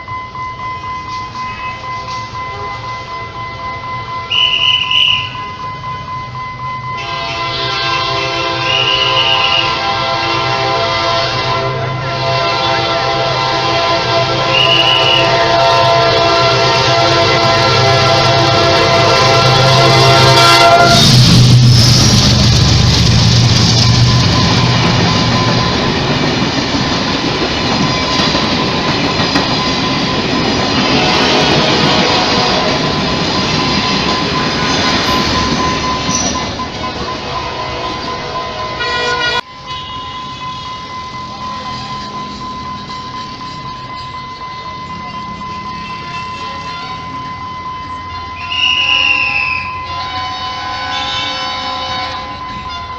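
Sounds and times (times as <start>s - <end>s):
train rumble: 0.0s - 52.9s
train horn blast: 7.0s - 21.3s, 37.4s - 40.7s, 48.4s - 52.9s.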